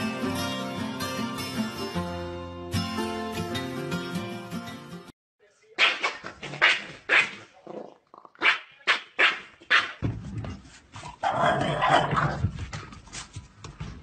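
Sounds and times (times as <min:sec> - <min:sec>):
dogs barking: 0:08.4 - 0:10.0.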